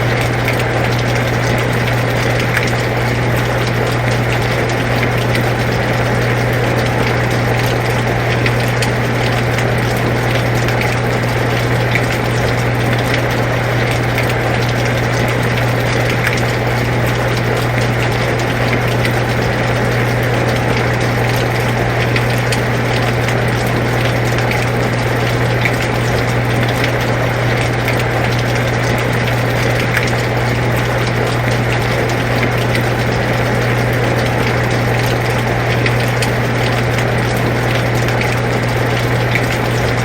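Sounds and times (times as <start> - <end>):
air conditioner humming: 0.0 - 40.0.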